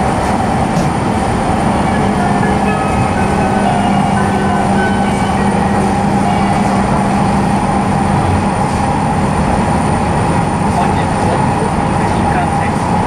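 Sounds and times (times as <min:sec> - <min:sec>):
steady hum: 0:00.0 - 0:13.0
train wheels rumbling: 0:00.0 - 0:13.0.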